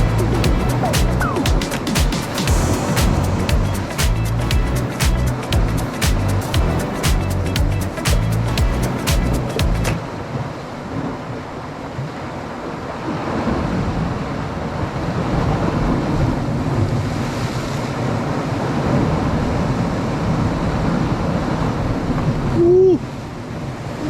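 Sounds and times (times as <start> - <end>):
wind on microphone: 0.0 - 4.9.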